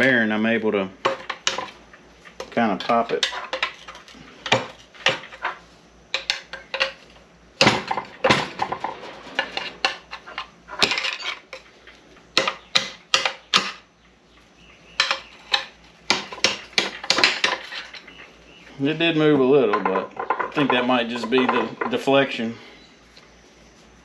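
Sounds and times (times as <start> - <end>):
hand tools clanking on metal: 2.4 - 7.0, 7.6 - 11.7, 15.0 - 18.3, 19.6 - 22.3.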